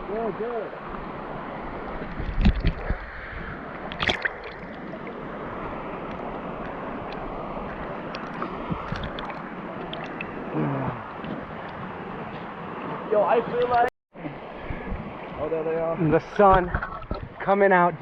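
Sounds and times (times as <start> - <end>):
water splashing: 0.0 - 13.9
waterfall rushing: 3.6 - 11.2.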